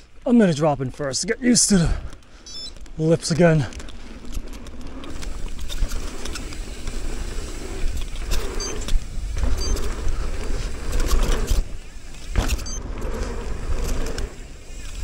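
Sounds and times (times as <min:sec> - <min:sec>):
bike rattling and clicking: 0:00.9 - 0:15.0
tyres rumbling on dirt: 0:02.9 - 0:15.0.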